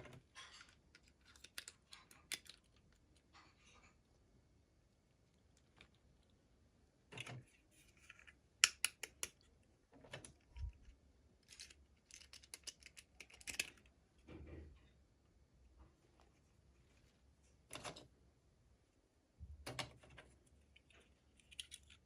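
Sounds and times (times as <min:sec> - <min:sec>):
toy packaging clicks and crinkles: 0:00.3 - 0:03.0, 0:11.4 - 0:13.9, 0:20.7 - 0:22.0.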